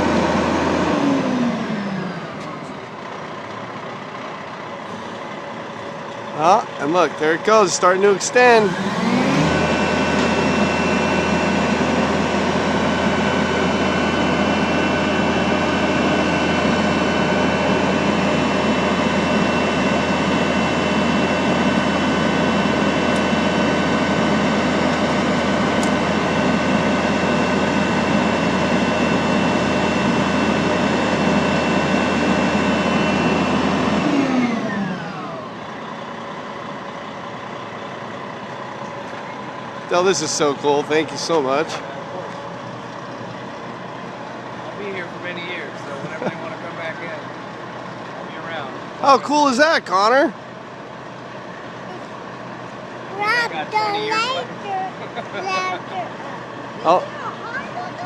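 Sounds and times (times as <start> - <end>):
fire truck engine drone with whine: 0.0 - 58.0.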